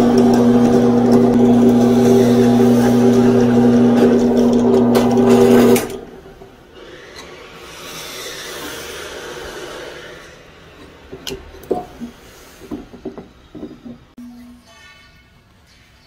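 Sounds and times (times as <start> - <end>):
drill press motor humming: 0.0 - 6.4.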